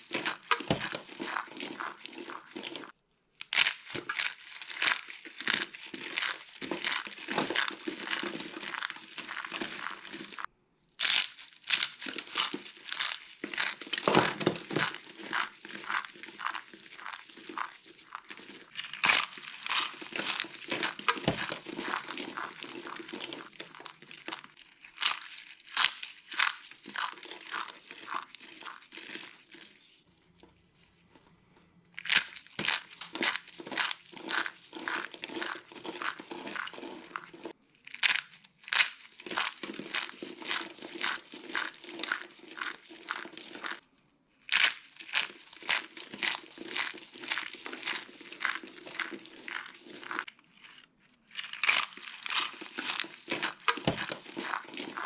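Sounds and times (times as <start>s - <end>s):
soap crunching and crackling: 0.0s - 30.7s, 31.9s - 55.0s.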